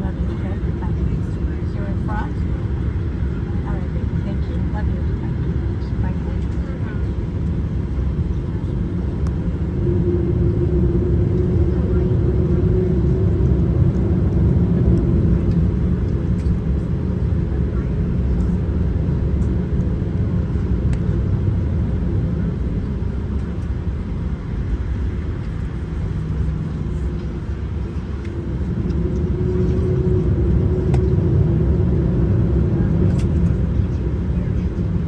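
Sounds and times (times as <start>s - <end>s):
faint hum: 0.0s - 35.0s
vehicle interior rumble: 0.0s - 35.0s.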